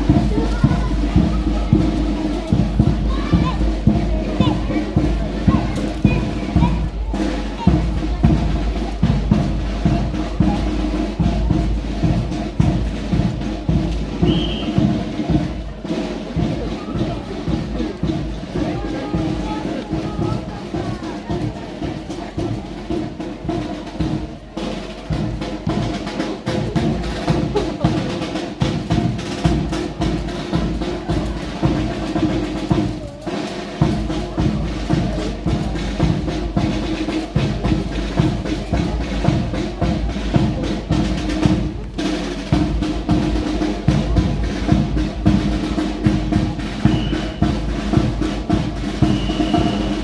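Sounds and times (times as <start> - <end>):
snare and bass drums: 0.0 - 50.0
band playing music: 25.9 - 28.5.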